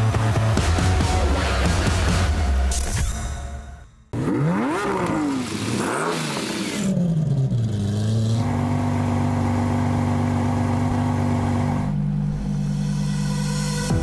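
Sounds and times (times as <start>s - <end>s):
car engine revving and idling: 4.1s - 14.0s.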